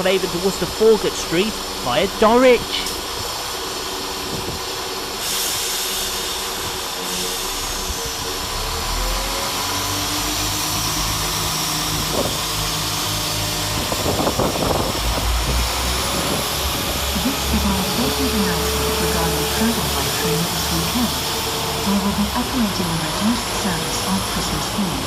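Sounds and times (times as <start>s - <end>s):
diesel train engine rumble: 0.0s - 25.0s
rising engine whine: 6.0s - 25.0s.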